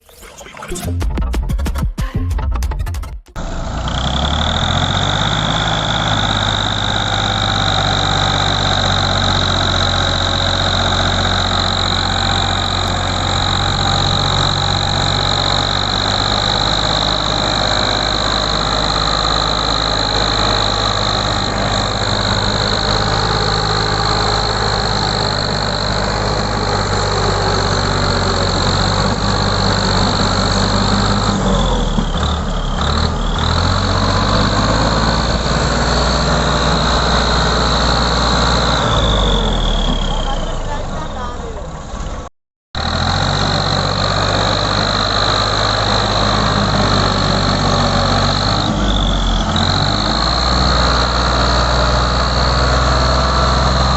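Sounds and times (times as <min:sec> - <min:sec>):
tractor diesel engine running: 0:00.8 - 0:53.9.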